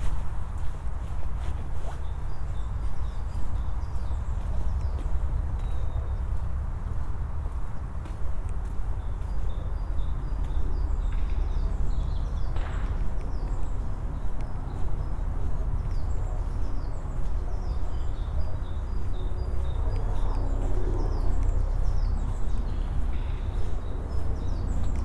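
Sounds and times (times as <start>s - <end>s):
footsteps on a path: 0.0s - 11.4s.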